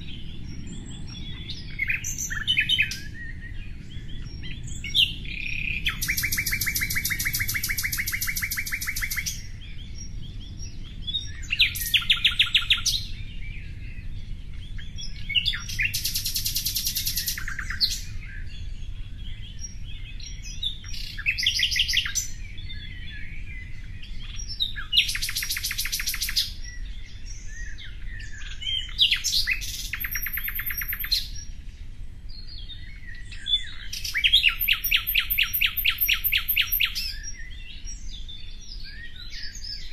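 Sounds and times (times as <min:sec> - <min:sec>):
songbird trilling: 0:00.0 - 0:14.0, 0:14.7 - 0:18.5, 0:19.1 - 0:31.6, 0:32.4 - 0:39.9
low background rumble: 0:00.0 - 0:16.4.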